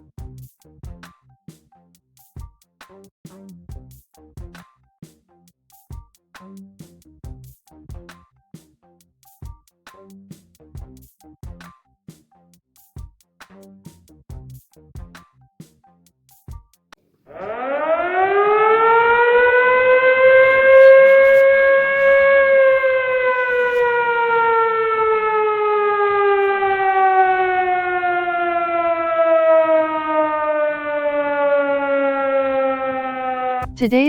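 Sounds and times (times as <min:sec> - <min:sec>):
siren winding up and down: 0:17.3 - 0:33.8.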